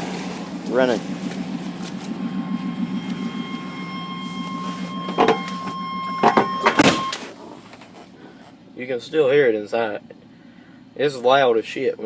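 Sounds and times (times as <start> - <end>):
short louder sound: 0.0 - 7.4
truck engine idling: 0.0 - 12.0
thin steady high tone: 0.6 - 7.2.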